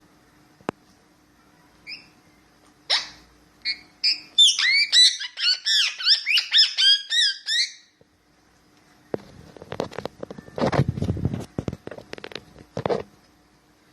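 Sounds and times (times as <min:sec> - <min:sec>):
parakeet chirping calls: 0:01.8 - 0:02.2, 0:02.9 - 0:08.0.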